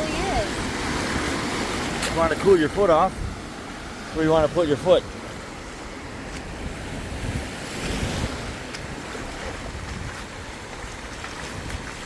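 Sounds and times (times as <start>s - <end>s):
ocean surf washing onto beach: 0.0s - 12.0s
wind rumbling on microphone: 0.0s - 12.0s.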